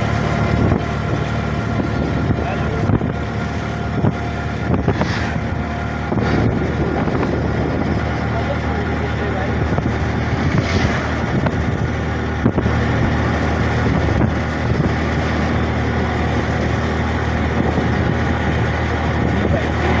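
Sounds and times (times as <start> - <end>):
auto-rickshaw engine hum: 0.0 - 20.0
road noise: 0.0 - 20.0.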